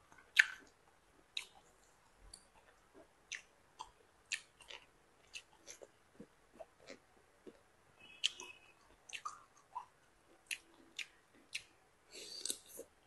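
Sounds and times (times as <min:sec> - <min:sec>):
moist crunchy chewing: 0:02.3 - 0:07.6
mouth clicks: 0:08.0 - 0:11.7.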